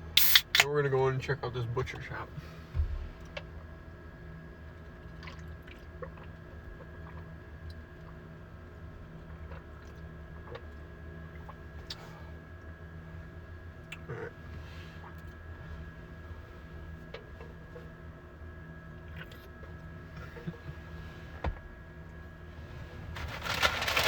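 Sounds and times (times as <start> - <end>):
steady low hum: 0.0 - 24.0
handling sounds: 23.1 - 24.0.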